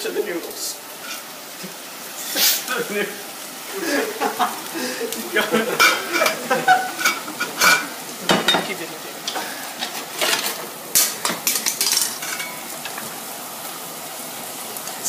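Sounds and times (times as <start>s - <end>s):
fish sizzling in a frying pan: 0.0s - 15.0s
utensil scraping cookware: 1.0s - 1.3s, 5.7s - 8.7s, 9.3s - 13.1s.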